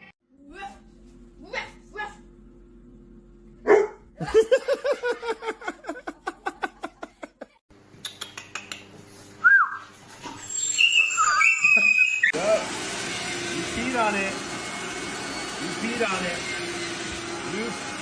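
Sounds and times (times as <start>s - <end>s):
dog barking and yapping: 3.6s - 4.0s
short high-pitched calls: 10.5s - 12.3s.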